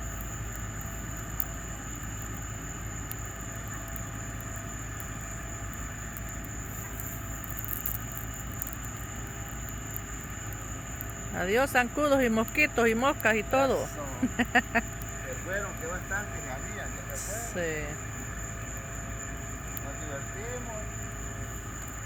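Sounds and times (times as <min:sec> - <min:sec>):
bonfire rumbling: 0:00.0 - 0:22.0
fire crackling and popping: 0:00.0 - 0:22.0.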